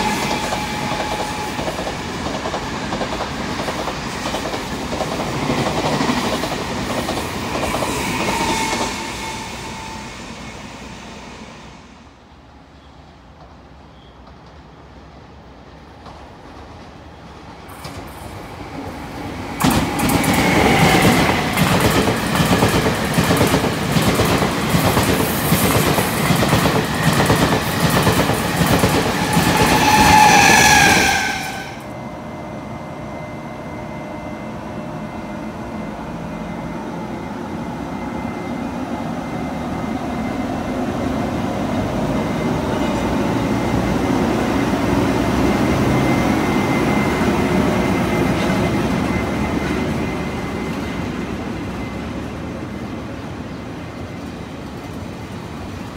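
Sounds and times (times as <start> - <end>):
train rolling slowly with rumble: 12.2 - 55.9.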